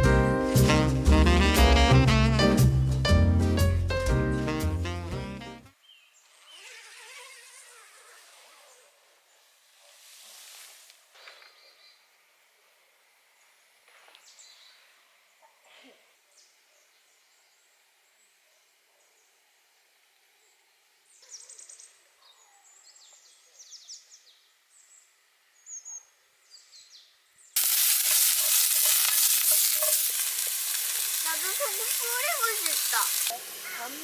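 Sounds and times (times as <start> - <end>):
food frying sizzle: 27.6 - 34.0.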